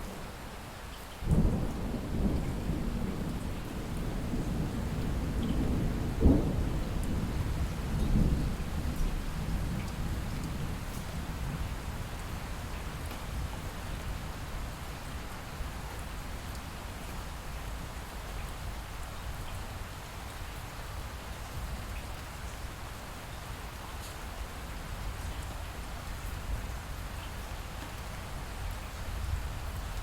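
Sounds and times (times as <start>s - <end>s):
steady light rain: 0.0s - 30.0s
thunder rumbling: 1.3s - 11.6s.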